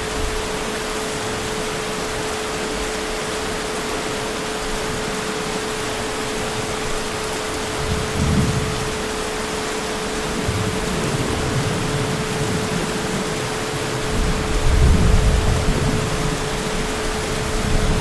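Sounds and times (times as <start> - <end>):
heavy rain: 0.0 - 18.0
distant thunder rumble: 7.7 - 18.0.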